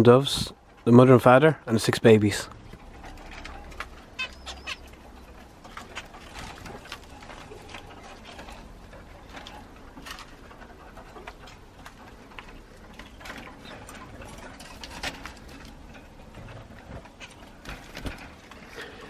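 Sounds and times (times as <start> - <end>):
low steady hum: 0.0 - 19.0
finches chirping: 3.4 - 7.2.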